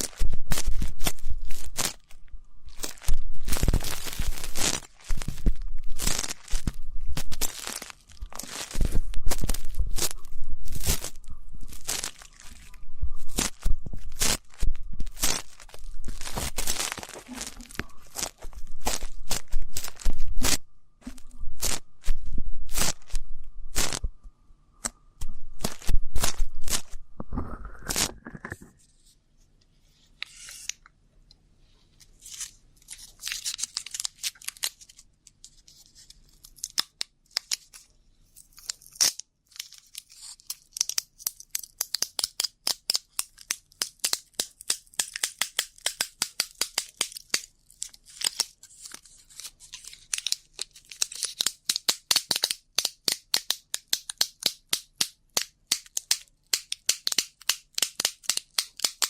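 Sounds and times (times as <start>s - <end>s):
ear pick scratching microphone: 0.0s - 2.1s, 2.7s - 24.2s, 25.2s - 28.8s.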